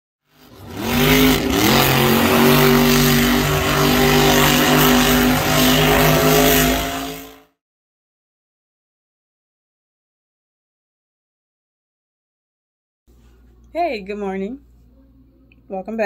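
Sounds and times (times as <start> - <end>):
engine at high revs: 0.3 - 7.6.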